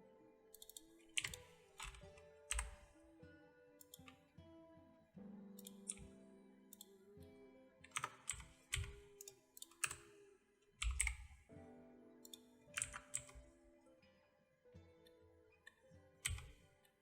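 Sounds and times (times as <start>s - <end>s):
keyboard keys clicking: 0.0s - 3.1s, 3.8s - 4.2s, 5.6s - 7.0s, 7.8s - 10.2s, 10.8s - 11.5s, 12.2s - 13.8s, 15.7s - 16.8s
quiet background music: 0.0s - 17.0s.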